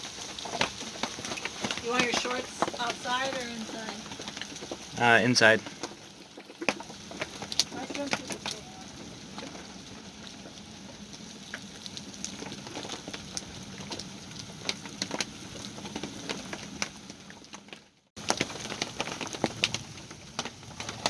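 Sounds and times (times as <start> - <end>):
rain pattering on a boat deck: 0.0 - 21.0.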